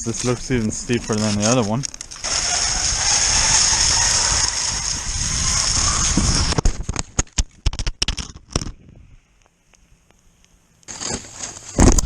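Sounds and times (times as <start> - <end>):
skis hissing on snow: 2.2 - 6.6.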